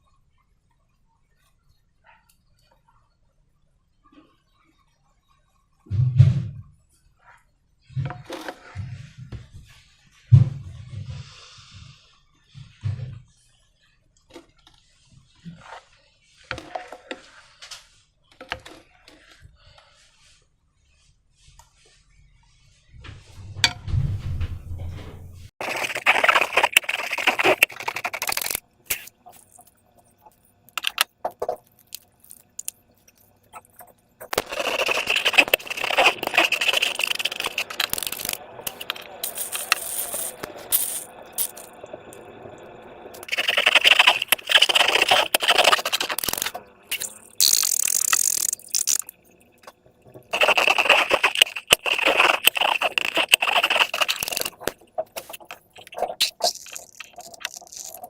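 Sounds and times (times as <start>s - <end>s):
slime crackling clicks and scraping: 25.6s - 41.7s, 43.2s - 49.2s, 50.3s - 58.0s.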